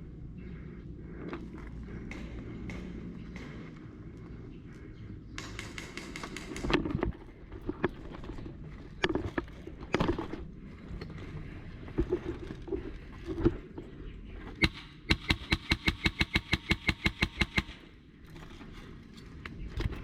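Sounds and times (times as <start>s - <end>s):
airsoft gun shots: 14.6s - 17.8s.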